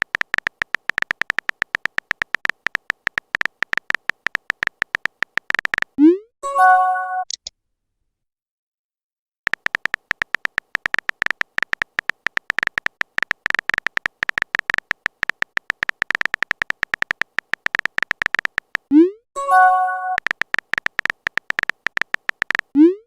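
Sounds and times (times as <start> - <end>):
phone keyboard beeping clicks: 0.0 - 6.0, 9.5 - 23.0.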